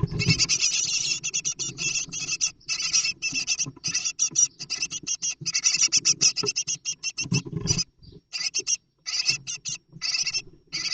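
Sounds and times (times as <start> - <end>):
scrabbling in nest box: 0.0 - 7.9
nestlings begging calls: 0.0 - 10.9.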